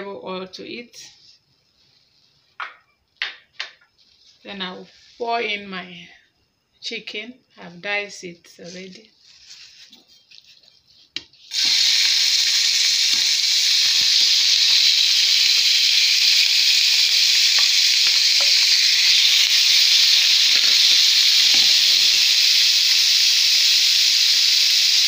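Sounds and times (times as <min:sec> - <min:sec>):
chicken sizzling in hot oil: 0:11.4 - 0:25.0.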